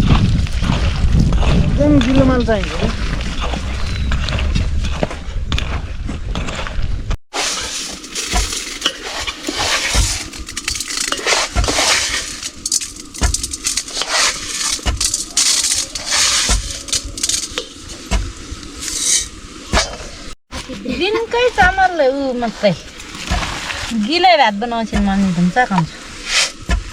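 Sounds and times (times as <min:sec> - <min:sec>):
metal pot and utensils clinking: 0:07.4 - 0:18.0
scratchy hiss: 0:07.4 - 0:20.4, 0:25.3 - 0:26.6.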